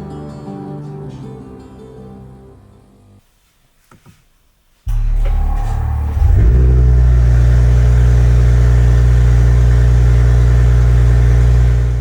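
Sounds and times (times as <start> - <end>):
car engine idling: 4.9 - 12.0.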